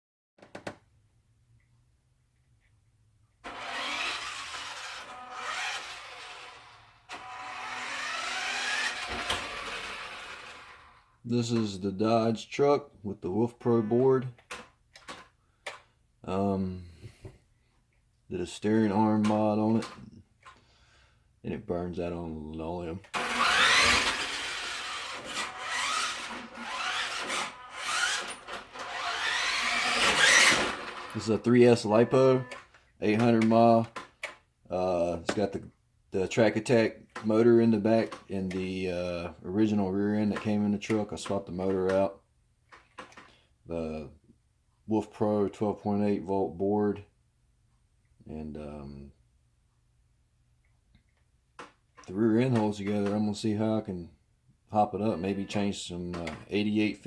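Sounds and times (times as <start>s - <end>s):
electric motor whine: 3.5s - 11.0s, 23.2s - 31.2s.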